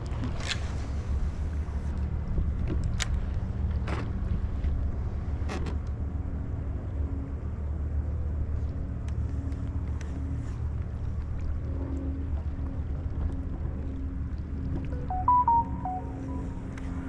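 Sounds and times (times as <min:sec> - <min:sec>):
faint hum: 0:13.7 - 0:17.0.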